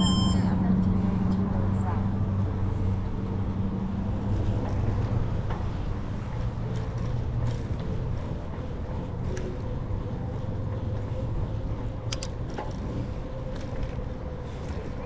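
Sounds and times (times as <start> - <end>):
wind and road rumble: 0.0 - 15.0
sharp clicks: 12.1 - 12.4.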